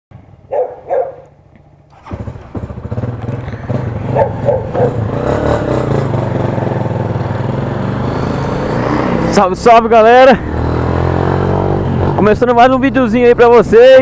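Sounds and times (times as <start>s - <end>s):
dog barking: 0.5s - 1.3s, 4.1s - 5.0s
motorcycle engine running: 1.9s - 9.7s.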